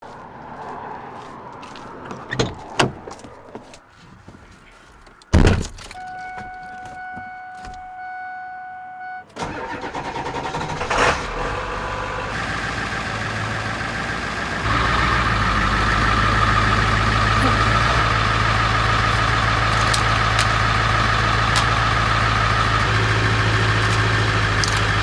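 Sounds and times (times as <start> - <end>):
heavy thud: 5.3 - 5.9
diesel engine cranking and idling: 9.0 - 25.0.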